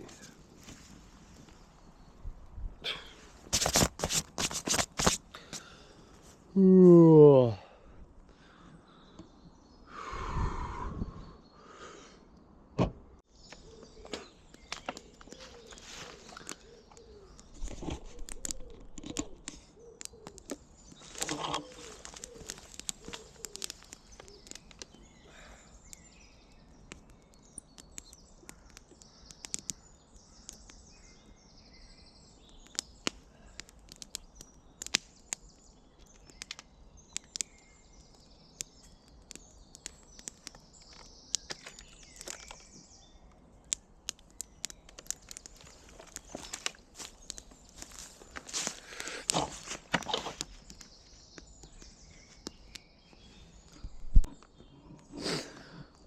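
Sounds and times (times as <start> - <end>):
birds calling and singing: 7.1 - 56.0
sharp clicks and crackles: 13.5 - 25.0, 25.8 - 30.8, 32.4 - 52.9.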